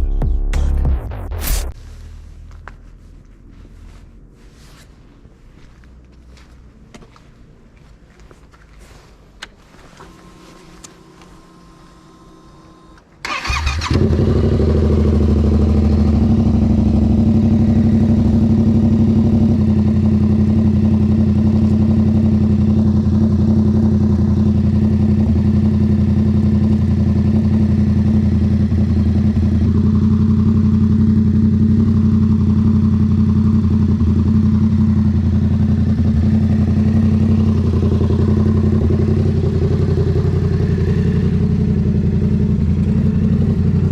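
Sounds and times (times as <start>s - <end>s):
motorcycle engine cranking: 13.2s - 14.6s
motorcycle engine idling: 13.2s - 43.9s.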